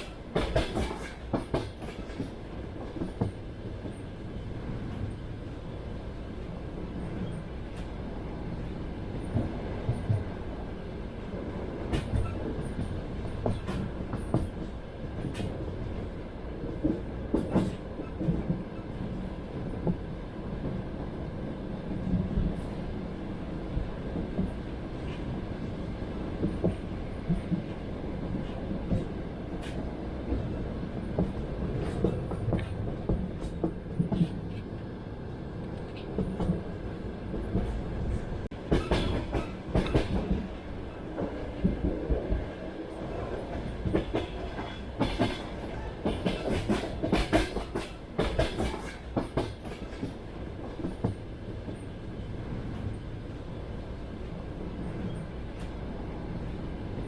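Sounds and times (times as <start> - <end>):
train wheels clacking: 0.0 - 4.0, 16.8 - 18.6, 38.5 - 51.8
train wheels rumbling on rails: 0.0 - 57.0.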